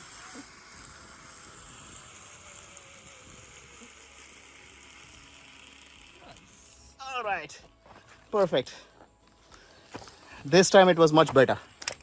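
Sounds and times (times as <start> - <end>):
zip-line pulleys whirring on cable: 0.0 - 7.2.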